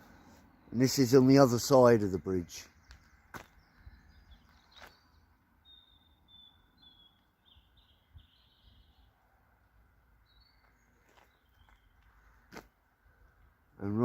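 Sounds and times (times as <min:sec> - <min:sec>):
songbird singing: 0:00.0 - 0:14.0.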